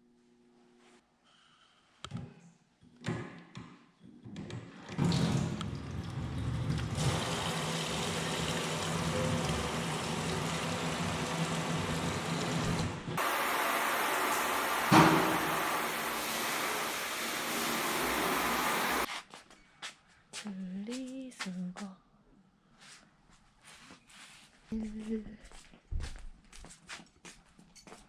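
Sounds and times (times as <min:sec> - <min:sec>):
tap water running into sink: 0:05.0 - 0:19.1.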